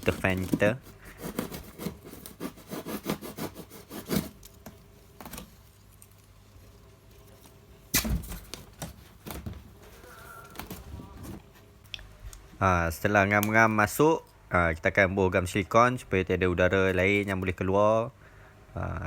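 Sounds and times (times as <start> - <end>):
blade cutting foam: 0.0 - 5.6.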